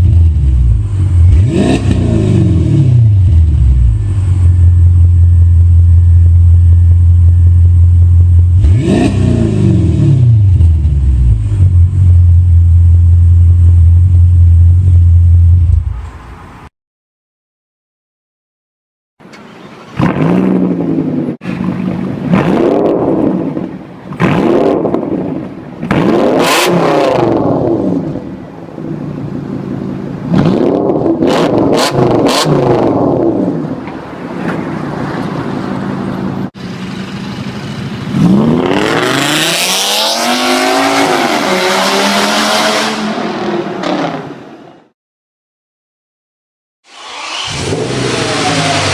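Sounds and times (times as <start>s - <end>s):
car engine revving: 0.0s - 6.3s, 8.0s - 12.5s, 20.0s - 21.4s, 22.0s - 28.3s, 30.2s - 33.8s, 35.7s - 44.4s, 46.9s - 48.9s.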